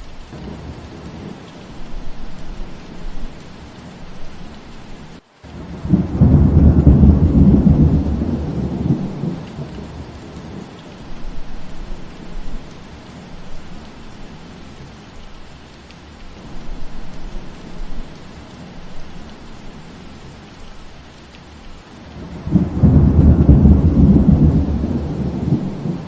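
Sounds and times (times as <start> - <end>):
steady rain: 0.0 - 26.0
thunder rumbling: 0.3 - 4.6, 5.5 - 14.8, 22.0 - 26.0.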